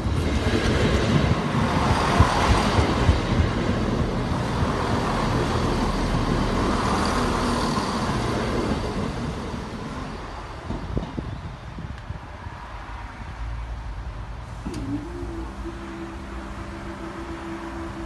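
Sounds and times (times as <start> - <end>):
train wheels rushing on rails: 0.0 - 12.6.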